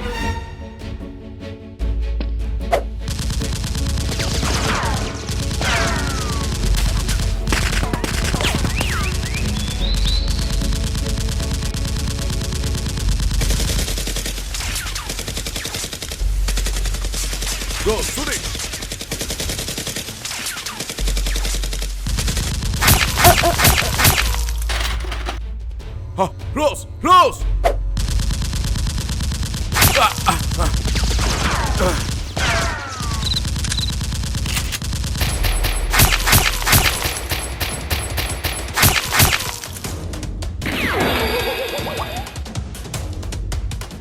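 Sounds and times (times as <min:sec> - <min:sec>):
rapid automatic gunfire: 0:03.1 - 0:24.4, 0:28.0 - 0:39.9.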